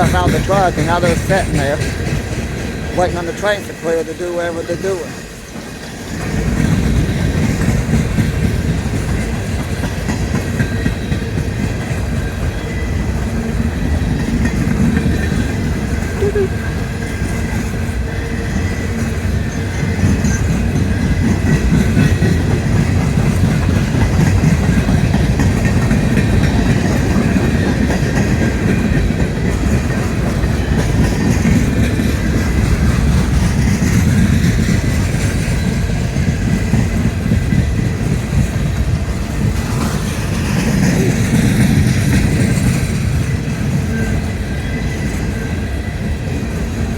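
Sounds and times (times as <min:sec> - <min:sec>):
train cars rolling on rails: 0:00.0 - 0:46.9.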